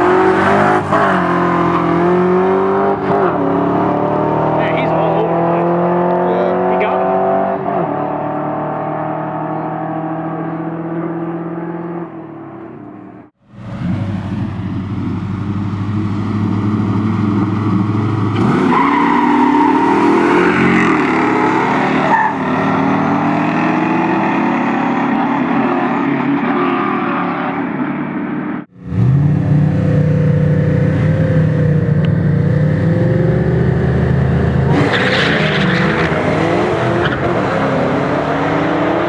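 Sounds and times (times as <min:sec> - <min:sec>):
car engines revving at full throttle: 0:00.0 - 0:39.0
car engines idling: 0:13.3 - 0:18.4.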